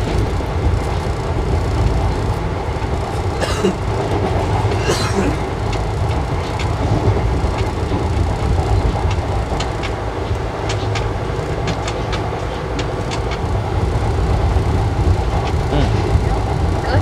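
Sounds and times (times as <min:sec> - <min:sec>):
train rumbling on track: 0:00.0 - 0:17.0
sharp clicks and rattles: 0:05.5 - 0:17.0.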